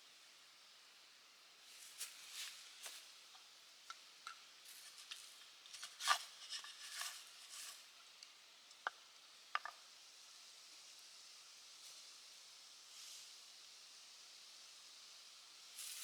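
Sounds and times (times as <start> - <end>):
small clicks and taps: 8.2 - 9.8.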